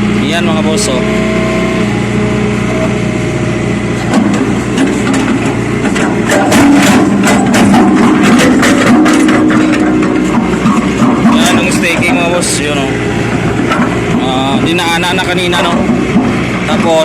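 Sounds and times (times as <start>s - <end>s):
diesel engine running: 0.0s - 17.0s
metal clanks and knocks: 4.0s - 17.0s.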